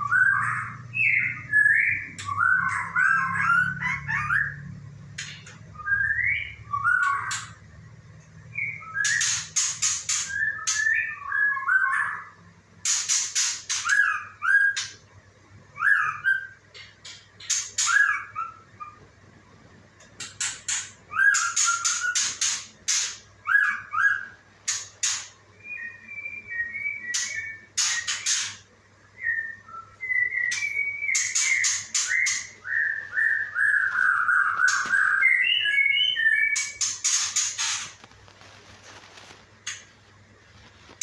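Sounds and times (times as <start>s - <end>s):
songbird whistling: 0.0s - 4.6s, 5.2s - 7.6s, 8.4s - 15.0s, 15.7s - 19.0s, 20.4s - 37.9s.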